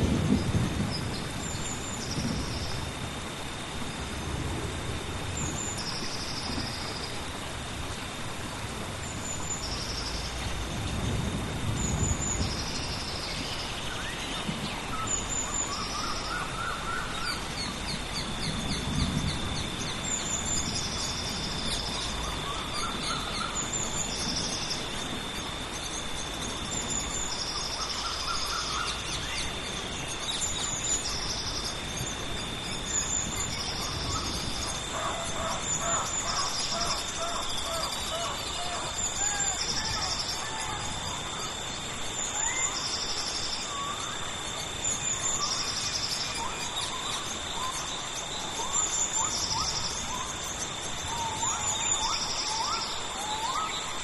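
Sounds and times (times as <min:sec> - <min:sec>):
low thunder rumbling: 0:00.0 - 0:07.0, 0:07.6 - 0:27.6, 0:29.0 - 0:37.2
rain hiss: 0:00.0 - 0:54.0.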